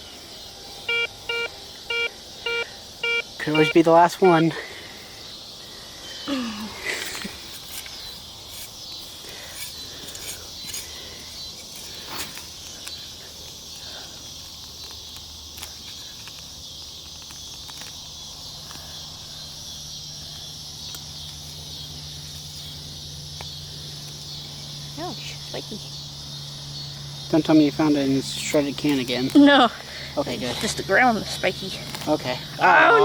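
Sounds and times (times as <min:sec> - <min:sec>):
insects chorus: 0:00.0 - 0:33.0
scrapes and knocks of digging: 0:06.8 - 0:13.1.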